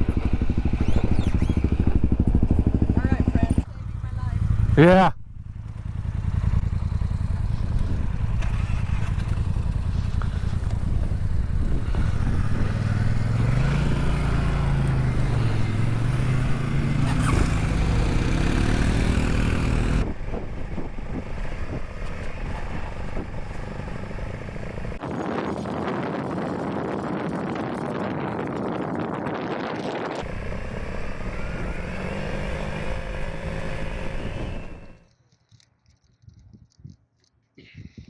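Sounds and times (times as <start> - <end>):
motorcycle engine revving: 0.0 - 25.0, 30.2 - 35.1
wind noise: 7.3 - 35.0, 36.2 - 38.0.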